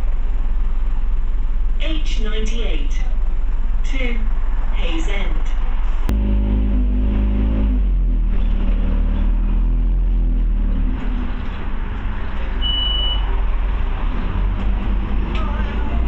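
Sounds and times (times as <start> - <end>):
bus engine drone: 0.0 - 16.0
road rumble: 0.0 - 16.0
high beep: 12.6 - 13.3.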